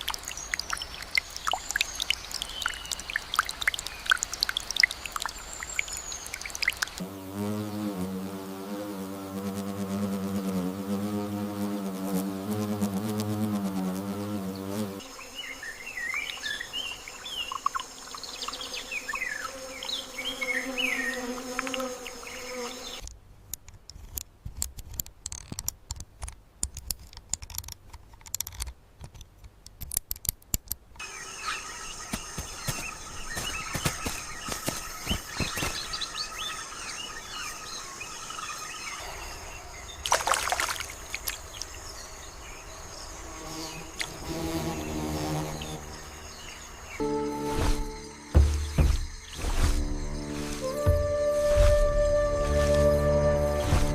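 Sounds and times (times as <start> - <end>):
sharp clicks and ticks: 0.0 - 7.0, 23.0 - 31.0
birds chirping: 0.0 - 8.2, 13.3 - 23.0, 31.0 - 53.9
high-pitched insect drone: 42.6 - 53.9.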